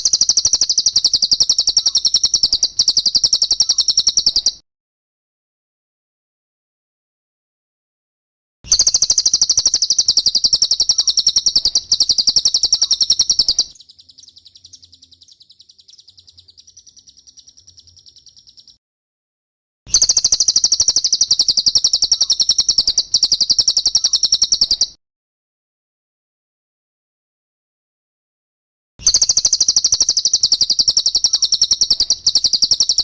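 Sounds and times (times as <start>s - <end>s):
bird trilling high chirps: 0.0s - 4.6s, 8.7s - 18.8s, 19.9s - 25.0s, 29.0s - 33.0s.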